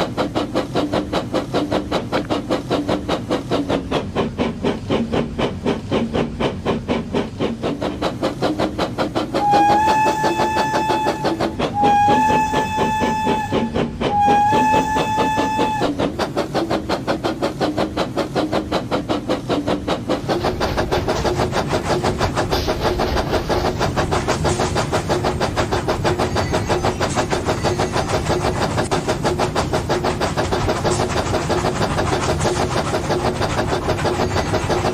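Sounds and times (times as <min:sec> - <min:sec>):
toy steam train chuffing: 0:00.0 - 0:34.9
train whistle blasts: 0:09.4 - 0:16.0.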